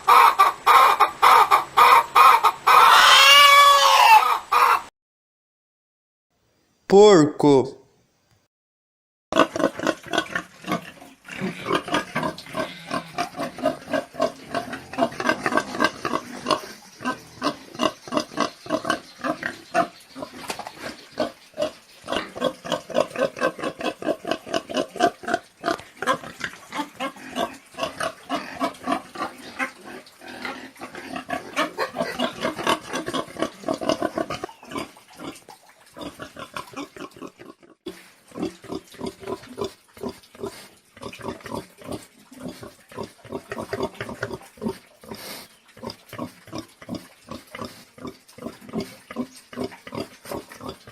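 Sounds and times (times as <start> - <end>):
pigs grunting: 9.4 - 50.9.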